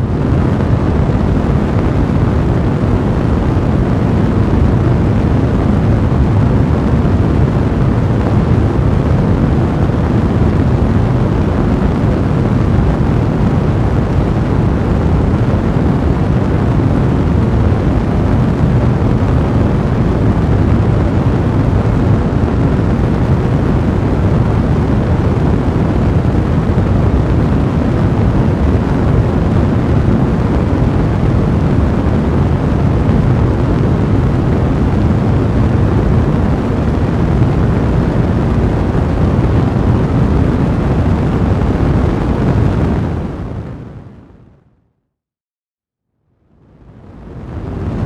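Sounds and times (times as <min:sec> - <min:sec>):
fire blazing in a fireplace: 0:00.0 - 0:44.2.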